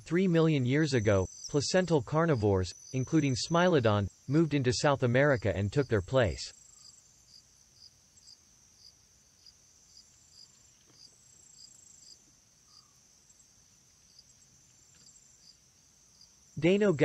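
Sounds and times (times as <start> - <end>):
faint cricket-like insect chirping: 0.0 - 17.0.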